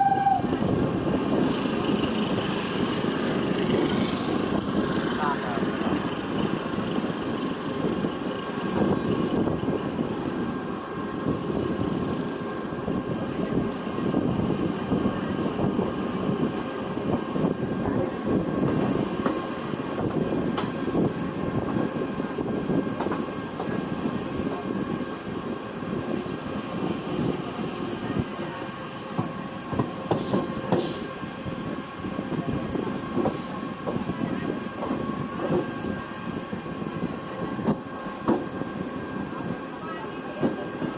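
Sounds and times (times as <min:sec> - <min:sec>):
train wheels rumbling and clattering: 0:00.0 - 0:40.9.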